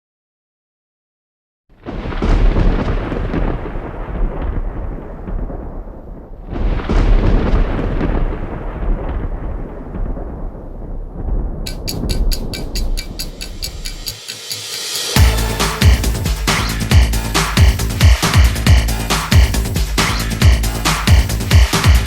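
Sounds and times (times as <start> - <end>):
loud low rumbling: 15.2 - 22.0.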